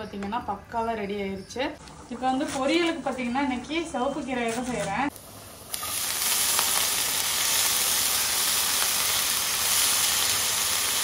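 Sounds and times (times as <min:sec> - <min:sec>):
leaves sizzling in a frying pan: 0:04.7 - 0:11.0.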